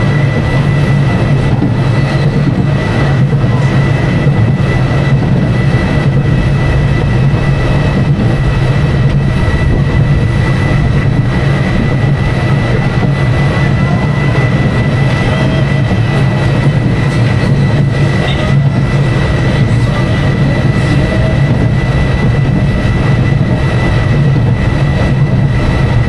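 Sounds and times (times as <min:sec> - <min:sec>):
high whine: 0:00.0 - 0:26.0
roller coaster low rumble: 0:00.0 - 0:26.0.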